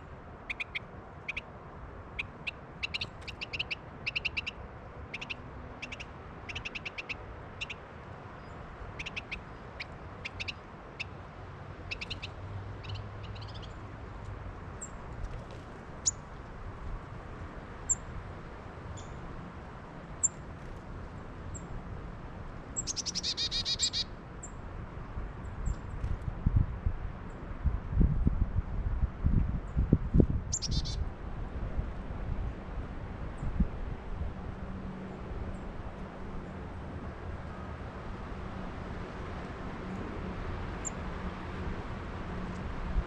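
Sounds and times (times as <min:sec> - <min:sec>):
songbirds calling: 0:00.4 - 0:01.5, 0:02.1 - 0:07.8, 0:08.4 - 0:11.2, 0:11.8 - 0:13.8, 0:16.0 - 0:16.2, 0:18.9 - 0:19.2, 0:22.8 - 0:24.6, 0:30.5 - 0:31.0
low wind rumble: 0:24.3 - 0:43.0.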